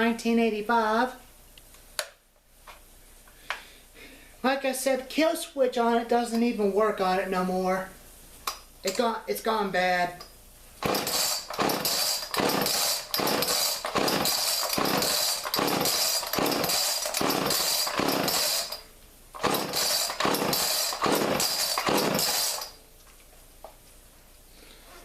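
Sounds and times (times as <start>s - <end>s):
chainsaw running at high revs: 10.8s - 18.8s, 19.4s - 22.8s.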